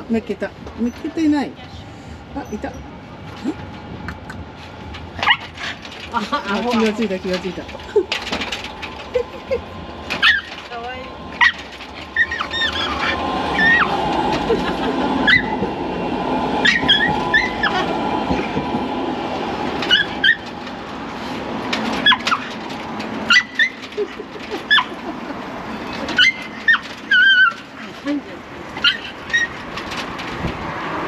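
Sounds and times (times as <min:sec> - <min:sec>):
passing traffic rumble: 0:00.0 - 0:31.0
dog whimpering: 0:11.4 - 0:14.0, 0:23.3 - 0:25.0, 0:28.8 - 0:29.6.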